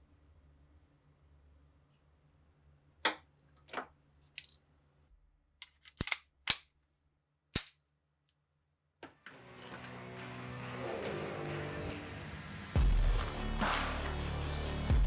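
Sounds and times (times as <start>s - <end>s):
rifle parts clicking and snapping: 3.6s - 4.6s, 5.6s - 6.9s, 7.6s - 7.8s.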